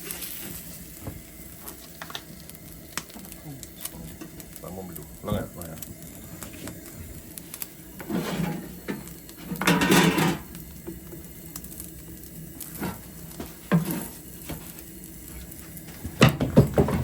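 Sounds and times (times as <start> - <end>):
scraping rustle: 8.0 - 8.7
pots and utensils clattering: 8.0 - 11.2, 12.6 - 17.0.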